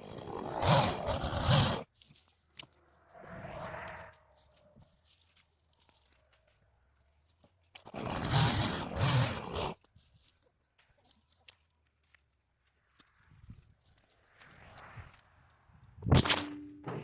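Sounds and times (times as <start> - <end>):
twigs and brush crunching: 1.9 - 7.9, 9.8 - 16.5.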